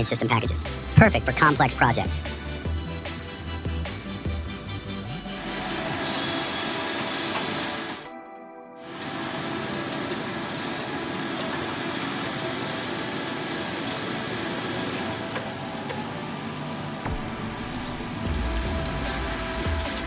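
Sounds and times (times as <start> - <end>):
heavy machine engine running: 0.6 - 8.1, 8.9 - 20.0.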